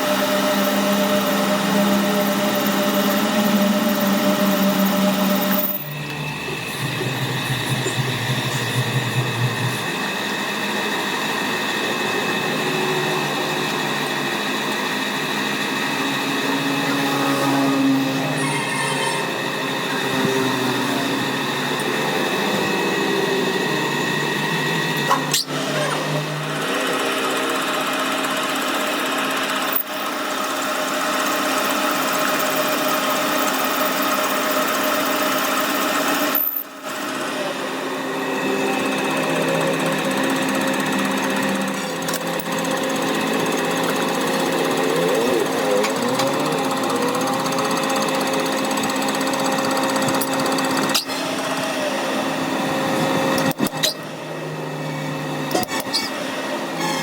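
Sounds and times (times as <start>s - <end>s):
machine tool cutting metal: 0.0s - 57.0s.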